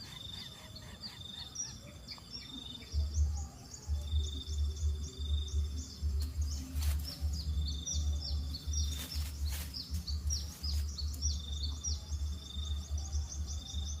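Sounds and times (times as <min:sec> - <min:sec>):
high bird chirps: 0:00.0 - 0:14.0
low pulsing rumble: 0:02.9 - 0:14.0.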